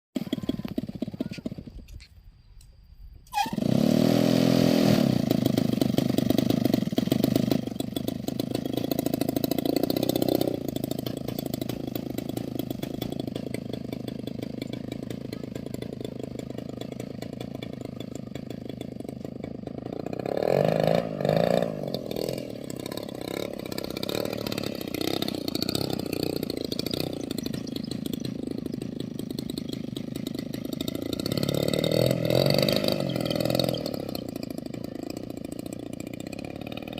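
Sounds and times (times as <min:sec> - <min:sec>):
model aircraft engine running: 0:21.1 - 0:36.9.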